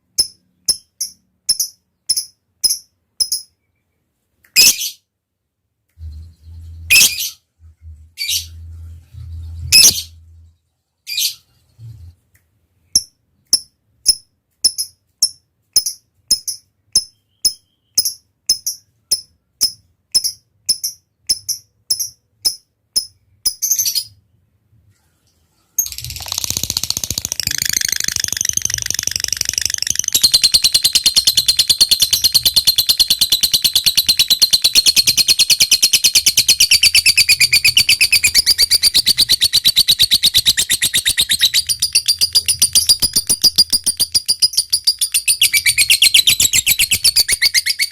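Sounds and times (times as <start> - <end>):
bird high ticking notes: 25.8 - 47.9
bird rapid chattering trill: 25.8 - 47.9.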